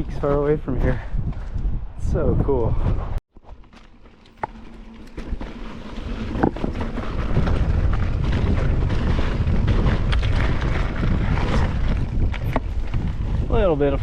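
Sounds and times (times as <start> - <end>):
wind buffeting microphone: 0.0 - 3.2, 5.4 - 14.0
bike clicks and knocks: 3.4 - 13.2.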